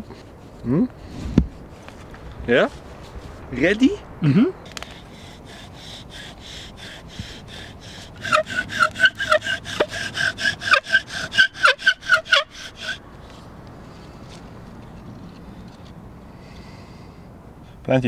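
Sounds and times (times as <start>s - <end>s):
bow drill spindle squeaking: 4.7s - 13.4s.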